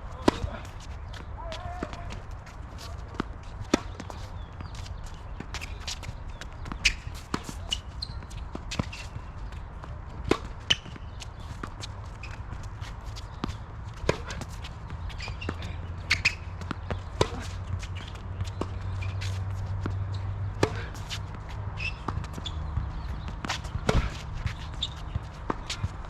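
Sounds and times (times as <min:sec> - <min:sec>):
footsteps on court: 0:00.0 - 0:26.0
tennis ball knocks: 0:20.6 - 0:21.0, 0:23.7 - 0:24.3.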